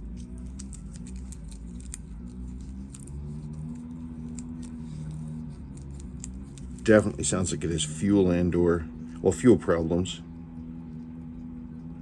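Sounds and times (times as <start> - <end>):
small tools clicking: 0.0 - 7.1
small engine running unevenly: 0.0 - 12.0.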